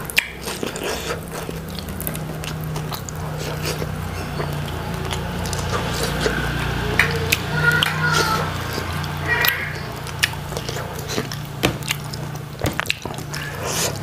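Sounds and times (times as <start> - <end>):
clicks and crackles of bones: 0.0 - 5.7, 9.0 - 14.0
chewing fried fish: 0.0 - 14.0
steady low hum: 0.0 - 14.0.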